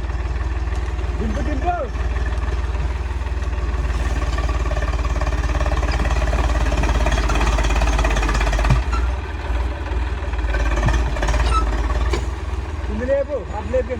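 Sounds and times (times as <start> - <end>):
tractor diesel engine running: 0.0 - 13.9.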